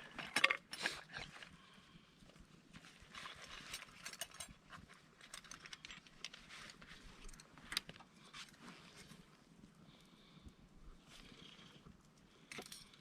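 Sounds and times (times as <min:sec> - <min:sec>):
small clicks and light knocks: 0:03.2 - 0:08.6.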